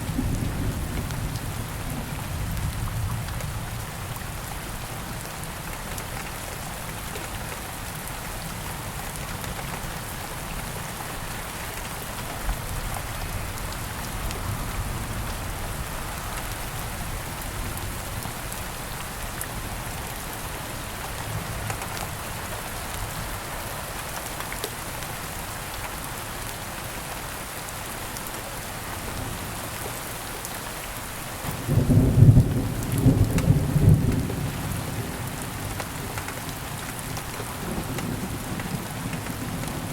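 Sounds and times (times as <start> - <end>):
steady rain hissing: 0.0 - 39.9
thunder rumbling: 31.5 - 35.7.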